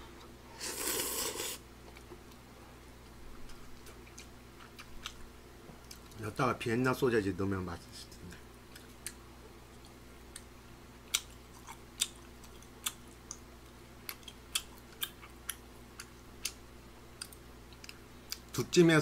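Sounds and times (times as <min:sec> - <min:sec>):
faint steady hum: 0:00.0 - 0:19.0
mouth chewing wet clicks: 0:11.1 - 0:16.6.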